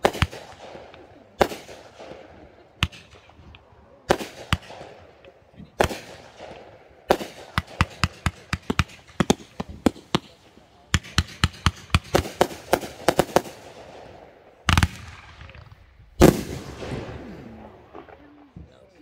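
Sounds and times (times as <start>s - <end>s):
fireworks bangs: 0.0s - 18.7s.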